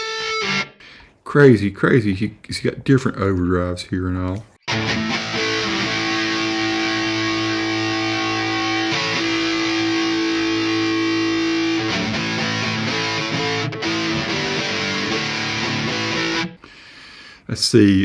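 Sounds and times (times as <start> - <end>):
distorted electric guitar: 0.0 - 0.8, 4.7 - 16.6.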